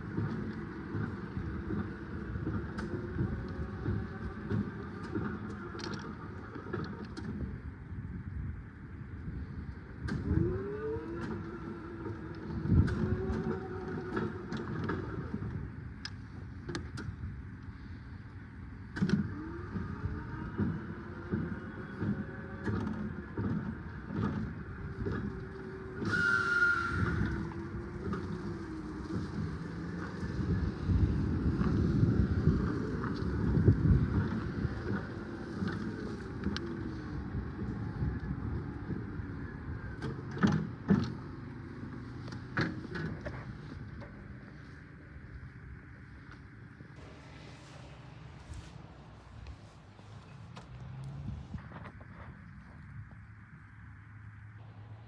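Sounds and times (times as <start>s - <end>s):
wind buffeting microphone: 26.8s - 40.6s, 47.0s - 53.7s
electric forklift rumble: 47.0s - 51.6s.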